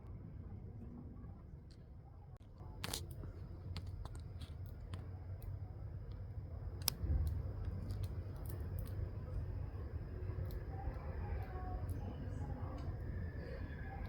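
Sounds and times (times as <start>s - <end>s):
steady low rumble: 0.0s - 14.0s
insect chewing crunching clicks: 2.8s - 12.0s
faint high whine: 4.9s - 14.0s.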